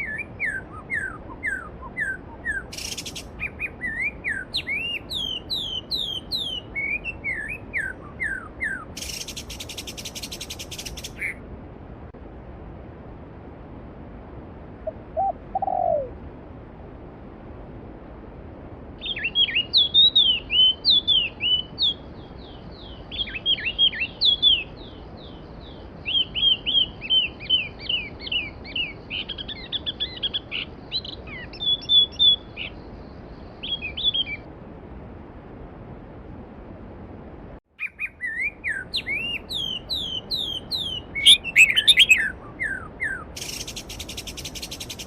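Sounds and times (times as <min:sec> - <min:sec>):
songbird chirping: 0:00.0 - 0:11.5, 0:14.8 - 0:16.2, 0:19.0 - 0:34.5, 0:37.7 - 0:45.0.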